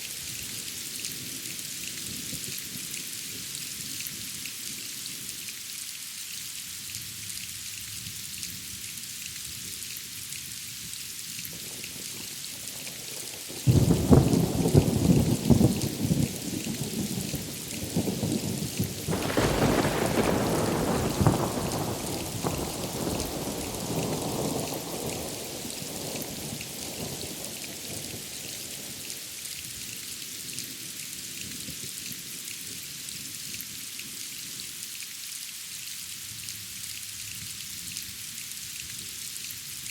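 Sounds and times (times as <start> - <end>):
rain hiss: 0.0 - 39.9
thunder rumbling: 13.7 - 28.0.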